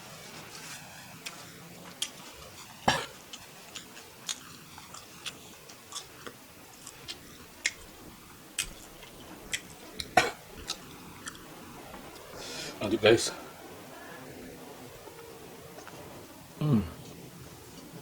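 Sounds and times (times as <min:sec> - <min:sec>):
wet chewing clicks and smacks: 0:01.2 - 0:11.5.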